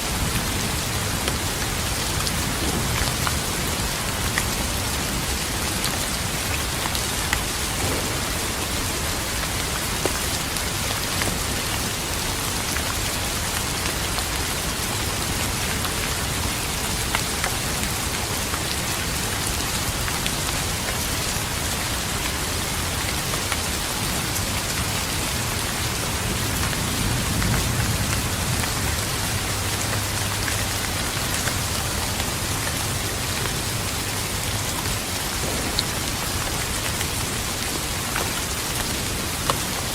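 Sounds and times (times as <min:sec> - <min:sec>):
rain falling on a surface: 0:00.0 - 0:39.9
low thunder rumble: 0:07.5 - 0:11.5, 0:35.4 - 0:38.1.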